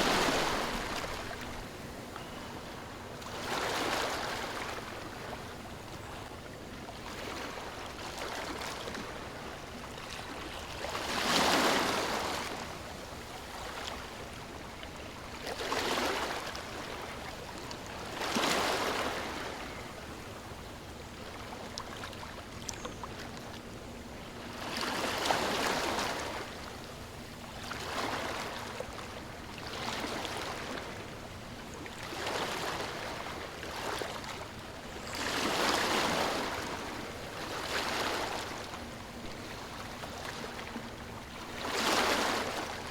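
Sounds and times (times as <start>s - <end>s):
ocean waves washing ashore: 0.0s - 5.8s.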